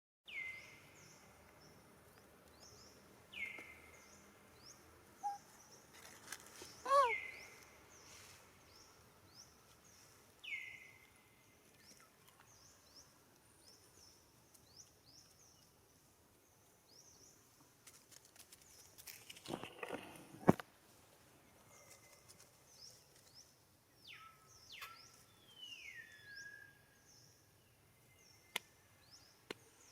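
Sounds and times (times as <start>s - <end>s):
birds chirping: 0.3s - 6.0s, 6.6s - 17.6s.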